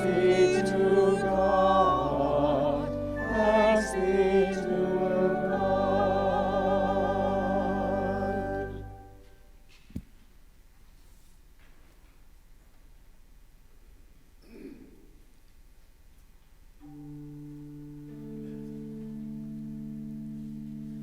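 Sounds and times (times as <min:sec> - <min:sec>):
voices singing church music: 0:00.0 - 0:09.3
low sustained accompaniment: 0:00.0 - 0:09.7, 0:16.7 - 0:21.0.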